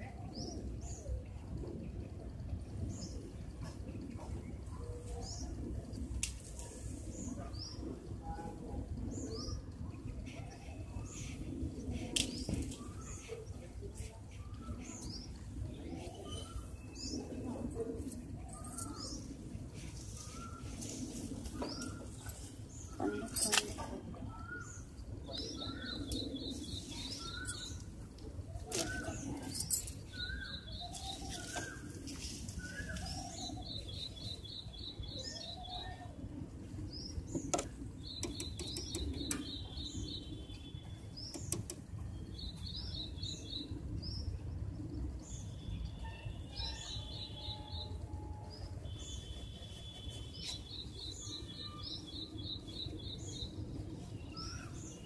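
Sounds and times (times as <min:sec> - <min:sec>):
birds chirping and trilling: 0:06.6 - 0:55.0
sharp clicks: 0:37.5 - 0:39.5, 0:41.3 - 0:41.9.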